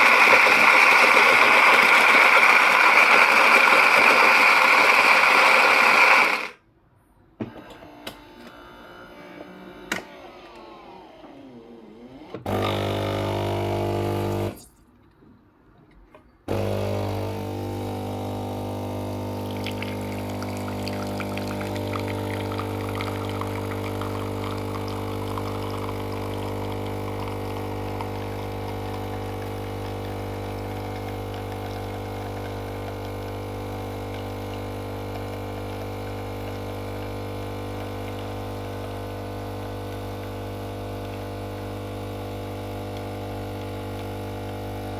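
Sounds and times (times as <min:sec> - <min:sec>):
coffee machine pump humming: 0:00.0 - 0:06.6, 0:12.4 - 0:14.6, 0:16.5 - 0:44.9
liquid crackling and pouring: 0:19.4 - 0:30.2.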